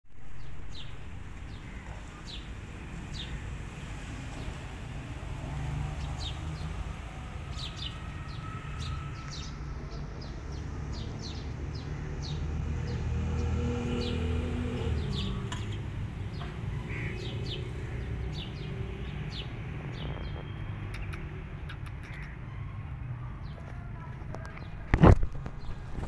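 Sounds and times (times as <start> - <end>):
small birds chirping: 10.2 - 22.5.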